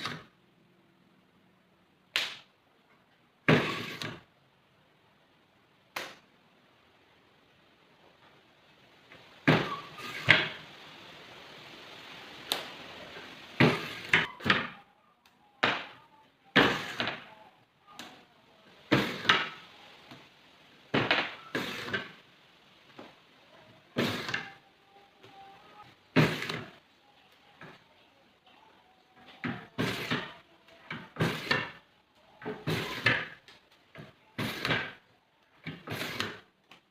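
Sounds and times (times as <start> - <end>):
faint steady hiss: 0.0 - 36.9
knocks and thumps on a workbench: 3.5 - 4.2, 20.9 - 22.1.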